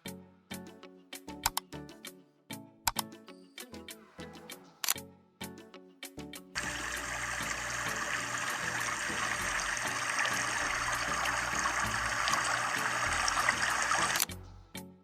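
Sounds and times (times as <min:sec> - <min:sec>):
water gushing from pump: 0:06.6 - 0:14.3.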